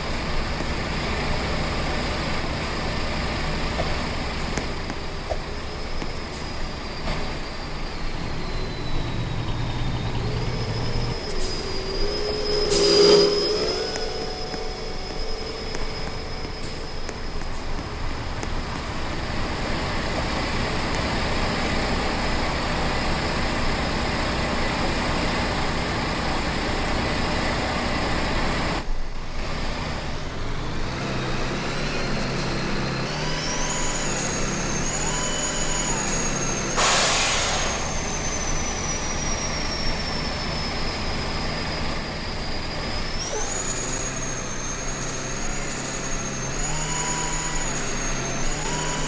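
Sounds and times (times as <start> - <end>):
thin high whine: 0.0 - 28.9, 30.1 - 49.0
truck engine and road noise: 0.0 - 49.0
burst of hiss: 33.1 - 39.8, 43.2 - 49.0.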